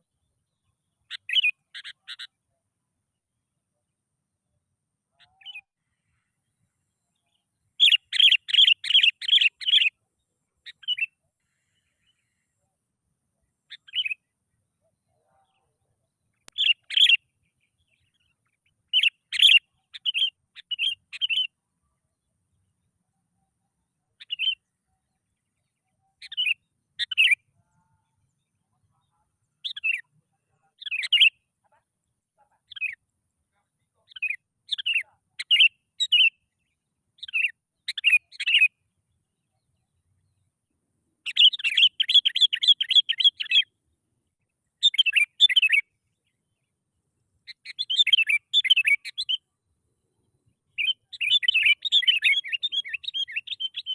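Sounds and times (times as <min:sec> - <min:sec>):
bulbul whistled calls: 0:07.8 - 0:10.0, 0:41.2 - 0:43.7, 0:47.5 - 0:49.4, 0:50.7 - 0:53.9.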